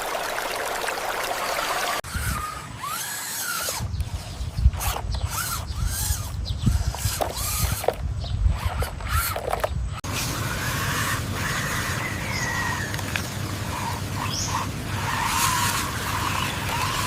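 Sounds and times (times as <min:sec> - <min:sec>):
small electric motors whining: 0:02.0 - 0:17.0.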